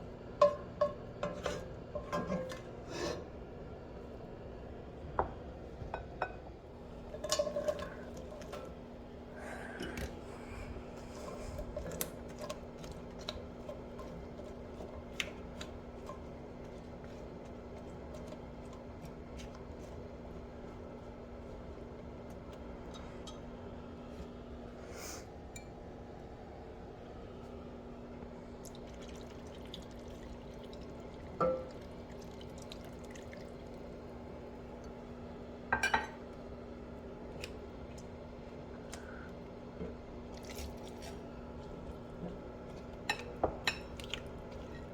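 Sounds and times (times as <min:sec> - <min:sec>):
steady low hum: 0:00.0 - 0:44.9
cooking clicks and ticks: 0:11.7 - 0:19.8.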